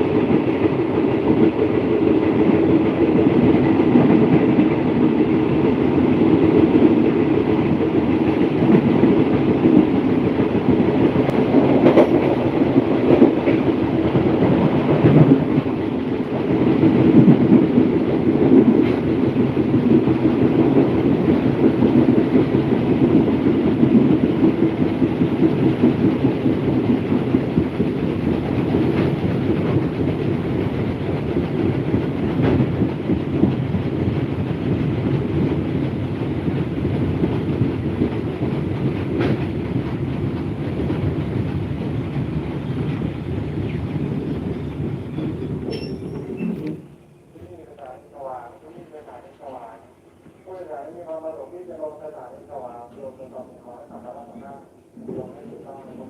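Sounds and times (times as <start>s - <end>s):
train wheels rumbling on rail: 0.0s - 56.0s
faint rail clacks: 37.2s - 48.0s.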